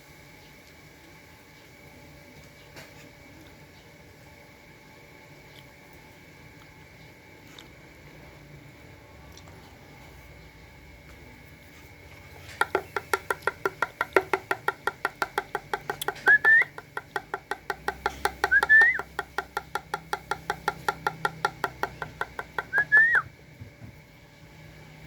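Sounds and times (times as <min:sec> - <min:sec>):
young dove peeping: 0:15.3 - 0:19.5, 0:21.8 - 0:23.3
dove rising squeal: 0:22.0 - 0:23.3.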